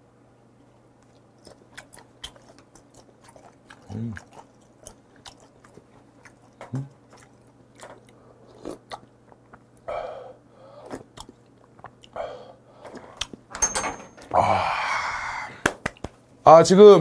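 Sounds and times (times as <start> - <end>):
wet chewing mouth clicks: 1.0 - 9.9, 10.8 - 12.2
person humming in enjoyment: 14.3 - 15.6.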